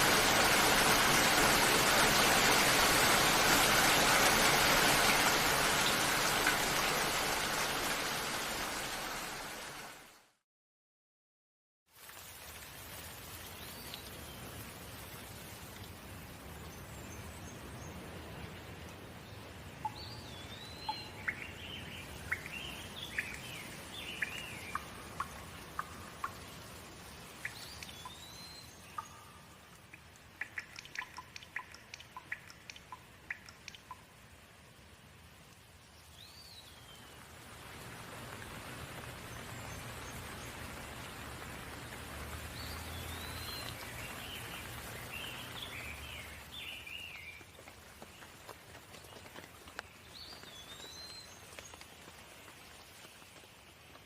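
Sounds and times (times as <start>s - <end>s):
rain hissing: 0.0s - 10.0s, 20.0s - 54.0s.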